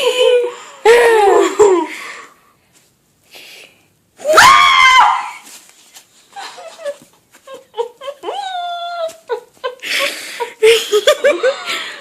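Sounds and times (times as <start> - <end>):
person giggling: 0.0 - 1.9, 6.3 - 12.0.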